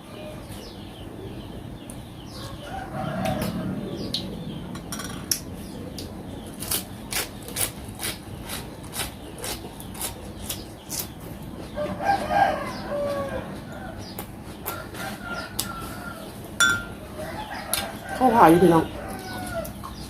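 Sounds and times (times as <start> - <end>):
wet chewing and sucking: 6.6 - 11.2.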